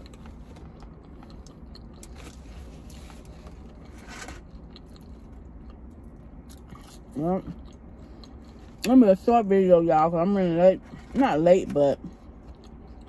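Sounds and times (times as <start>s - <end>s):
close-up chewing: 0.0s - 8.9s, 12.0s - 13.0s
steady low hum: 0.0s - 13.0s.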